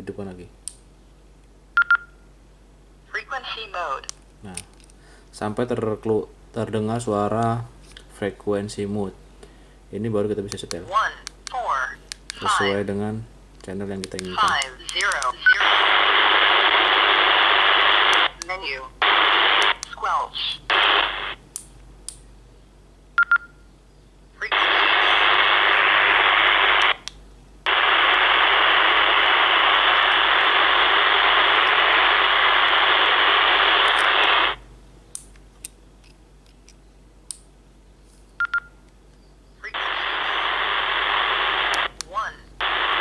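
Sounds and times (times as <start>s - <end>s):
keypad beeps: 1.8s - 2.2s, 23.2s - 23.6s, 38.4s - 38.7s
radio static hiss: 3.1s - 4.6s, 10.8s - 13.2s, 13.8s - 21.5s, 24.4s - 34.7s, 39.6s - 43.0s.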